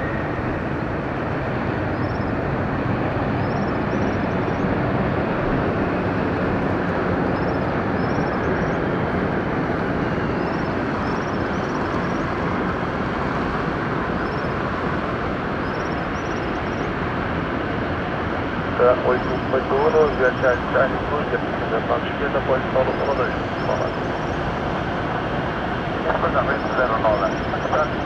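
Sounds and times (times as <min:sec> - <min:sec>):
jet engines roaring: 0:00.0 - 0:28.0
faint insect chirps: 0:02.0 - 0:02.3, 0:14.2 - 0:14.5, 0:15.6 - 0:16.9.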